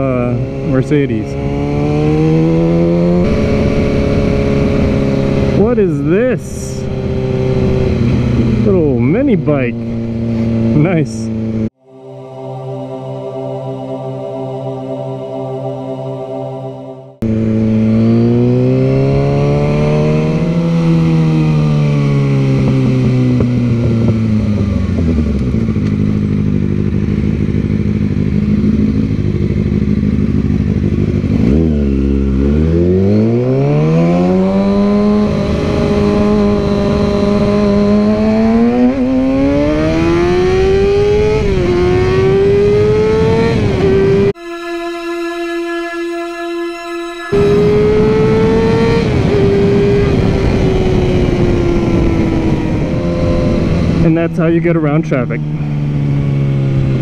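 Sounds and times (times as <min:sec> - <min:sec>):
motorcycle engine revving: 0:00.0 - 0:11.8, 0:17.1 - 0:57.0
wind rush: 0:01.2 - 0:09.2, 0:47.3 - 0:54.7.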